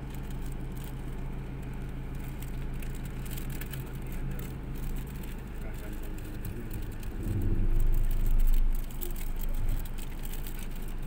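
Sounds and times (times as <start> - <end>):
car engine low hum: 0.0 - 11.0.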